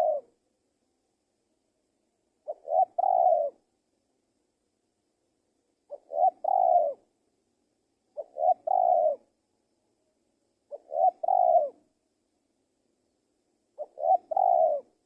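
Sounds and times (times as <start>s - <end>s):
dove cooing: 0.0s - 0.4s, 2.4s - 3.6s, 5.9s - 7.1s, 8.2s - 9.3s, 10.7s - 11.8s, 13.8s - 15.0s.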